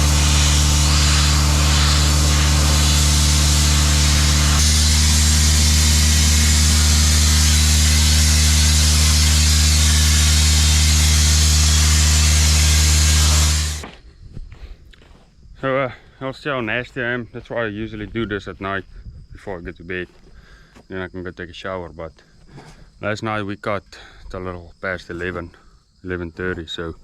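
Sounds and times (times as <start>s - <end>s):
combine harvester engine drone: 0.0s - 13.8s
hiss of working machine: 0.0s - 13.8s.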